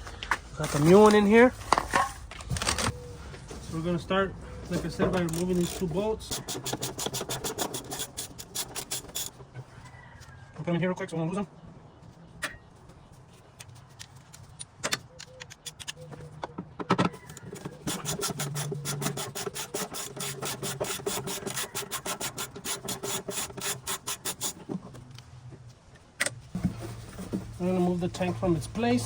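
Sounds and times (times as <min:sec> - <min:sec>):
ratchet wrench clicking: 0:05.1 - 0:09.4, 0:17.2 - 0:24.6.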